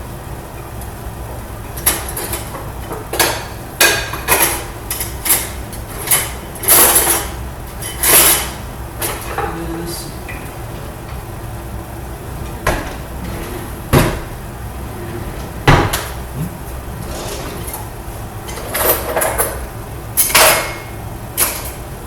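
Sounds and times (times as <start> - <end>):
steady low hum: 0.0 - 22.0
cupboard doors and drawers knocking: 13.9 - 14.3, 15.4 - 16.9.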